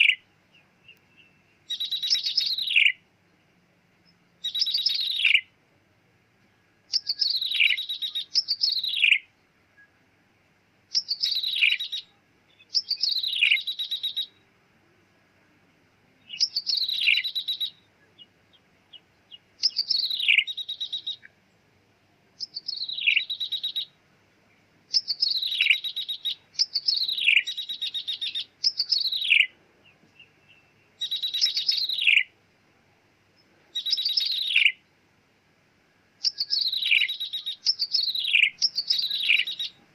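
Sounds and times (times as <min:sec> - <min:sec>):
bird whistling and trilling: 0:01.2 - 0:03.0, 0:04.4 - 0:05.5, 0:06.9 - 0:09.3, 0:10.9 - 0:12.1, 0:12.7 - 0:14.4, 0:16.3 - 0:17.8, 0:19.6 - 0:21.3, 0:22.4 - 0:23.9, 0:24.9 - 0:29.5, 0:30.2 - 0:32.3, 0:33.7 - 0:34.8, 0:36.2 - 0:39.8.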